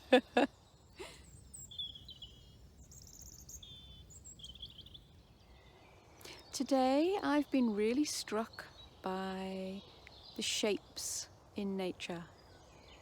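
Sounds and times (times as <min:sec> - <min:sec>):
songbirds twittering: 0:00.1 - 0:13.0
woman's voice: 0:06.4 - 0:09.8, 0:10.4 - 0:12.3.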